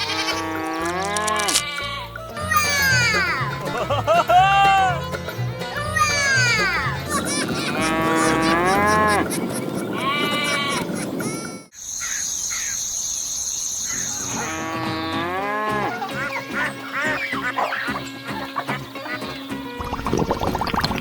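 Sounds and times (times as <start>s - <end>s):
background music: 0.0s - 9.2s, 14.3s - 21.0s
steady high tone: 2.6s - 3.6s.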